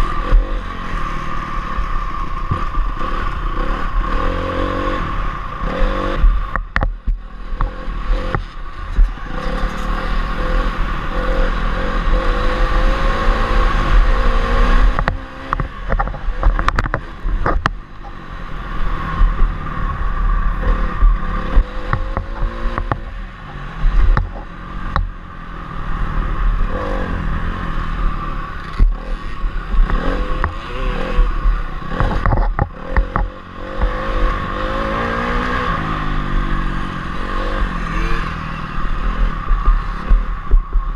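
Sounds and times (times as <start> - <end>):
motorcycle engine revving: 0.0 - 40.9
wind rumbling on microphone: 0.0 - 40.9.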